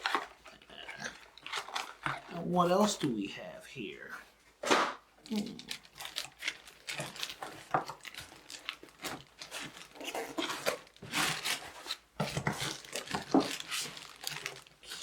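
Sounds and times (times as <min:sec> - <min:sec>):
cardboard and plastic rustling: 0:00.0 - 0:03.2, 0:04.2 - 0:15.0.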